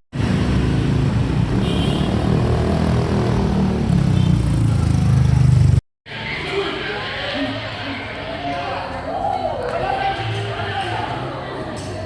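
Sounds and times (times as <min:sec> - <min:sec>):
vehicle engine rumbling: 0:00.2 - 0:05.8.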